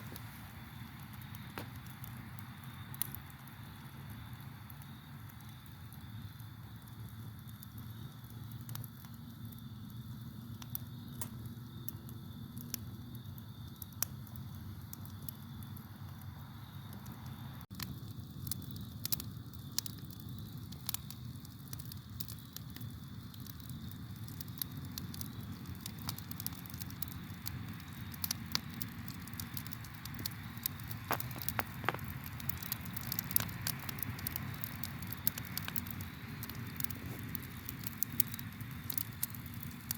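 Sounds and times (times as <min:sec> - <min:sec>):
campfire crackling and popping: 0:00.0 - 0:39.9
crickets chirping: 0:00.0 - 0:39.9
low steady rumble: 0:14.1 - 0:39.9.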